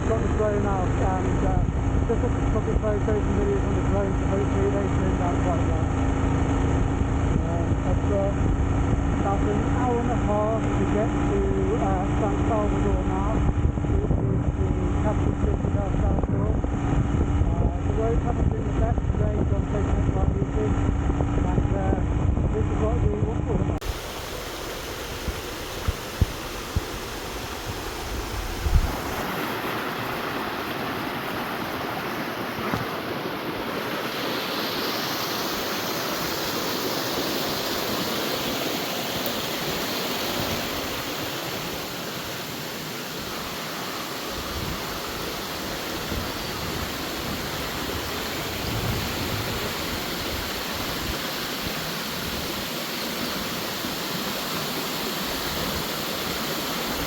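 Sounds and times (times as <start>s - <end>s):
waterfall rushing: 23.8s - 57.0s.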